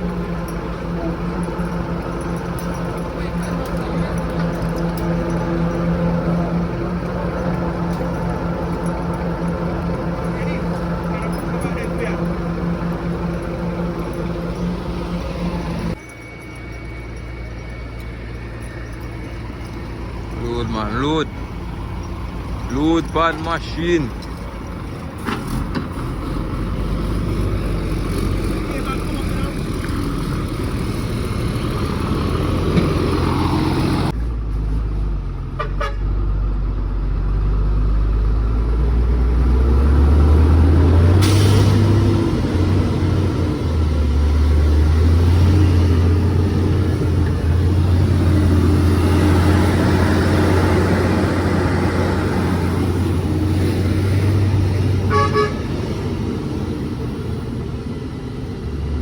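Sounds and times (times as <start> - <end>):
heavy truck engine: 0.0 - 59.0
vehicle horn tooting: 35.6 - 36.1, 55.0 - 55.9.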